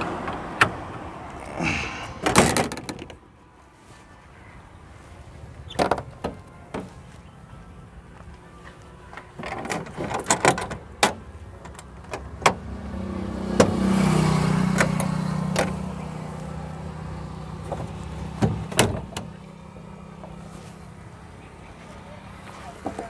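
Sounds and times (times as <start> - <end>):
metal panels clanking shut: 2.2 - 3.2, 9.4 - 12.6, 17.7 - 19.4
low engine hum: 4.4 - 23.0.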